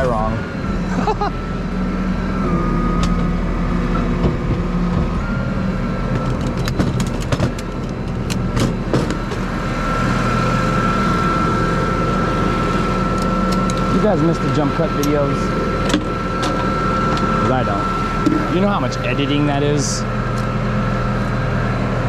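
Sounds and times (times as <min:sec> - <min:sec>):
tow truck engine running: 0:00.0 - 0:22.0
sharp clicks or rattles: 0:06.2 - 0:09.4.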